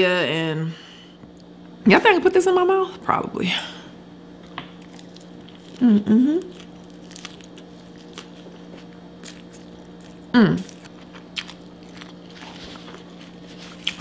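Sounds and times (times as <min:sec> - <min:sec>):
steady low hum: 0:00.0 - 0:14.0
person chewing food: 0:04.4 - 0:14.0.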